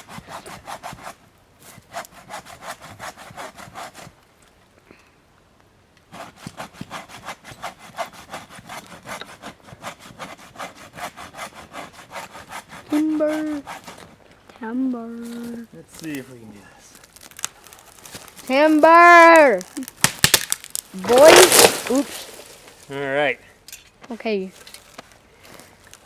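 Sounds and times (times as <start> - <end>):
hand saw cutting tree trunk: 0.0 - 4.1, 6.1 - 14.1, 20.0 - 22.8.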